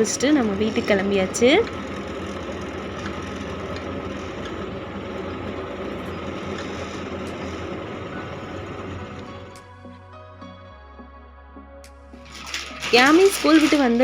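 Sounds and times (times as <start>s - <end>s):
motor humming with hiss: 0.0s - 9.6s.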